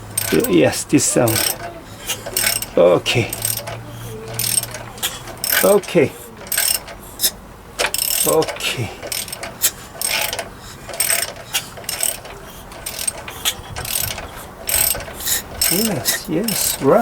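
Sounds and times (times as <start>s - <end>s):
ratchet wrench clicking: 0.0s - 17.0s.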